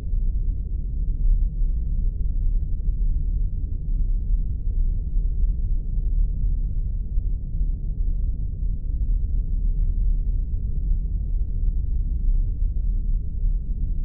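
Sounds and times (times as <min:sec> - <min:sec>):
deep engine-like rumble: 0:00.0 - 0:14.0.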